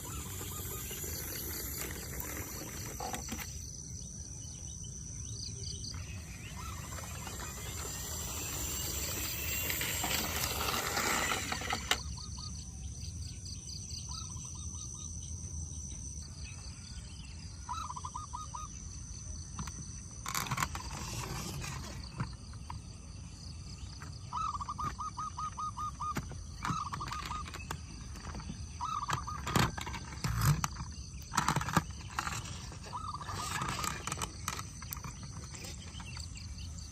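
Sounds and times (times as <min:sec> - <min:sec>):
high-pitched insect drone: 0:00.0 - 0:04.6, 0:05.2 - 0:12.5
birds chirping: 0:00.0 - 0:15.4, 0:16.1 - 0:36.9.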